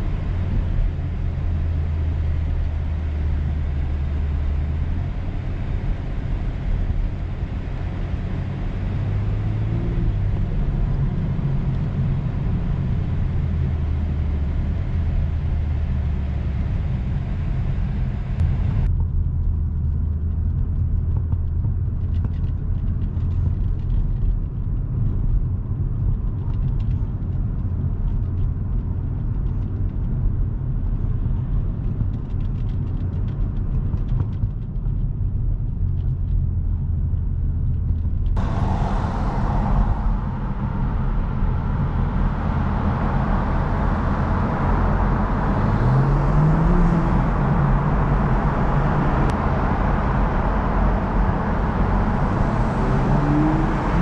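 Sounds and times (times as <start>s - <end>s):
car engine and road rumble: 0.0s - 54.0s
rising engine tone: 38.4s - 54.0s.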